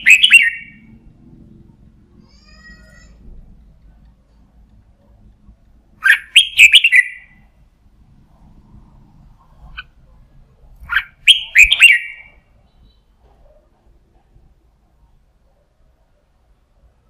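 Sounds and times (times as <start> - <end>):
bulbul singing: 0.0 - 1.1, 6.0 - 7.5, 10.8 - 13.1.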